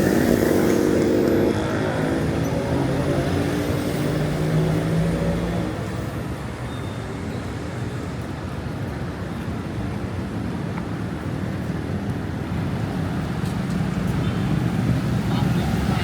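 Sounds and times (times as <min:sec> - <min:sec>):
vehicle engine running: 0:00.0 - 0:03.0
traffic hum: 0:00.0 - 0:06.4, 0:10.8 - 0:16.0.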